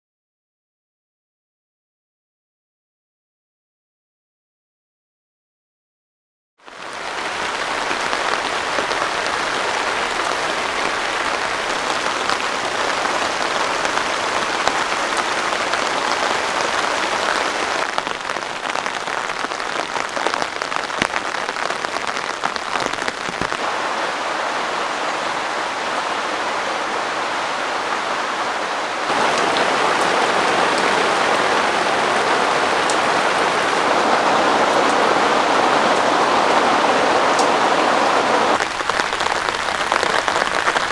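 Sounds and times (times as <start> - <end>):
heavy rain pouring: 6.7 - 40.9
sharp raindrop strikes: 7.1 - 24.2, 29.1 - 40.9.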